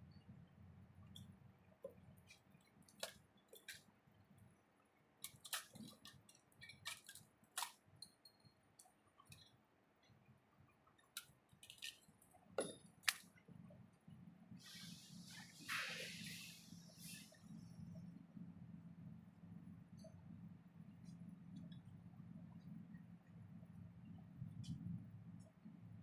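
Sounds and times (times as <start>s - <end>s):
faint small clicks and taps: 1.0s - 3.9s, 5.2s - 10.2s, 21.0s - 21.9s.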